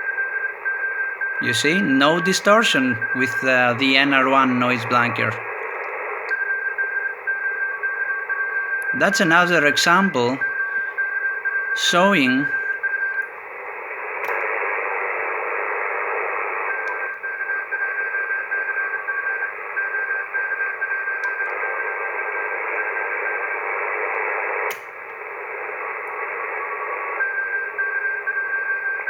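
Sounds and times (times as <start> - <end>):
radio band noise hiss: 1.4 - 5.6, 9.0 - 11.0, 11.8 - 12.6.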